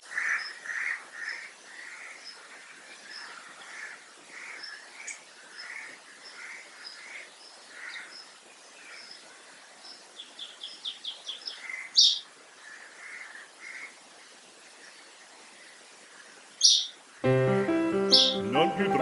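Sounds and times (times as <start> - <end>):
small birds chirping: 0.2 - 17.1
bird trill: 18.0 - 18.5.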